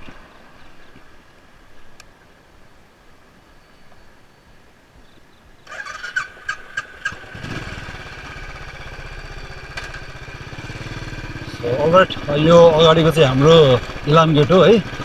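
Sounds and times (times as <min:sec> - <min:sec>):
motorcycle engine idling: 0:03.9 - 0:15.0.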